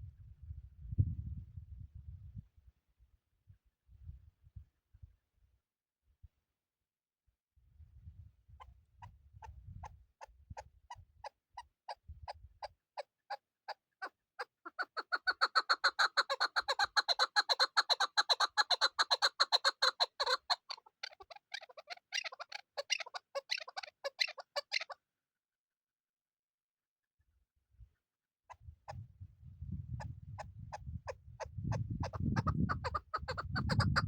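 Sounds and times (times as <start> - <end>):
partridge calling: 14.0 - 25.0, 31.4 - 34.0.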